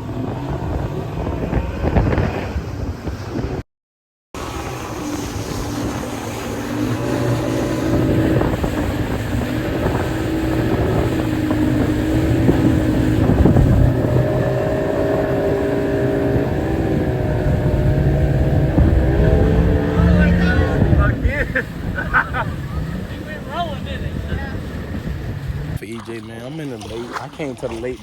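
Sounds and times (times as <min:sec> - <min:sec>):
motorboat engine drone: 0:00.0 - 0:03.6, 0:04.4 - 0:25.8
wind buffeting microphone: 0:00.0 - 0:03.6, 0:04.4 - 0:25.9.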